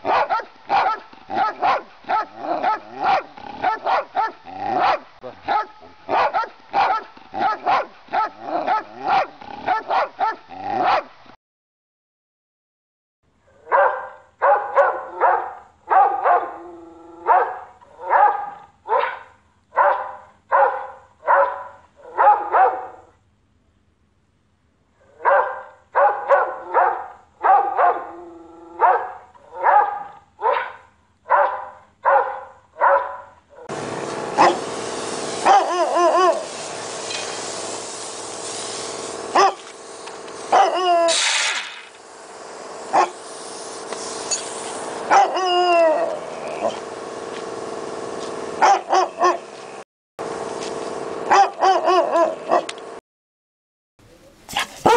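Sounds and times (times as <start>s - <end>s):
dog barking: 0.0s - 11.1s, 13.5s - 16.6s, 17.2s - 23.1s, 25.0s - 28.1s, 28.8s - 33.7s, 34.4s - 34.6s, 35.4s - 36.4s, 39.3s - 39.6s, 40.5s - 40.9s, 42.9s - 43.2s, 45.1s - 45.4s, 48.6s - 49.5s, 51.3s - 52.7s, 54.5s - 54.9s
dog howling: 16.3s - 18.3s, 35.5s - 36.4s, 40.6s - 41.2s, 45.1s - 46.8s.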